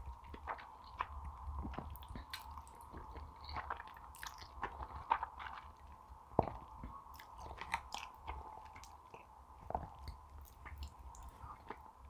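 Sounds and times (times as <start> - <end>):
faint steady hum: 0.0 - 12.0
chewing noodles wet mouth clicks: 1.7 - 5.6.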